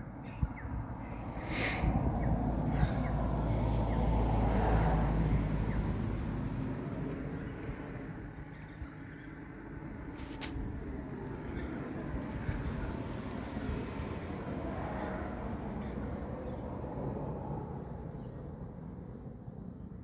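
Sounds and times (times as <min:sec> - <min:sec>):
vehicle engine passing by: 0:01.2 - 0:08.2.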